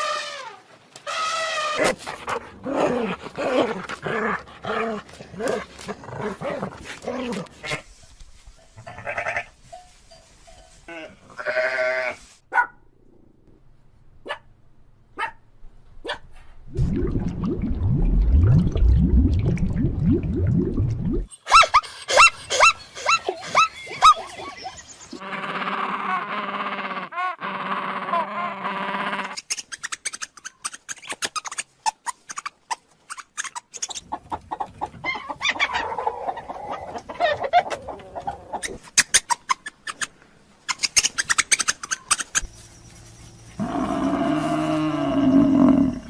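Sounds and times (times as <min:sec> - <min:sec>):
low rumbling noise: 0:16.7 - 0:21.3.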